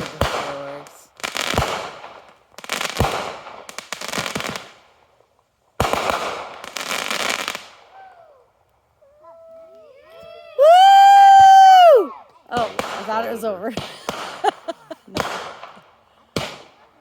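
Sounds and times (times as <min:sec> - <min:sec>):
fireworks bangs: 0:00.0 - 0:05.2, 0:05.8 - 0:08.1, 0:10.0 - 0:17.0
fireworks crackling: 0:00.0 - 0:17.0.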